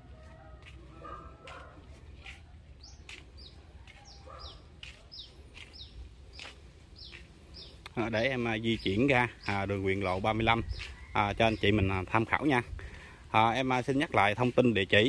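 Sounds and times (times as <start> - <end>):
small bird chirping: 2.8 - 11.8.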